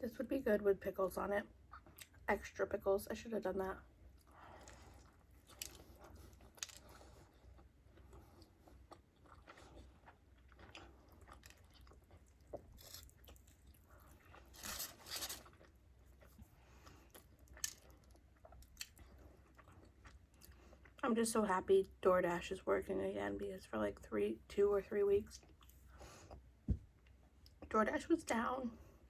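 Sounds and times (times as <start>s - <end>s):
person chewing food: 1.6s - 2.2s, 4.0s - 21.0s, 25.4s - 27.7s.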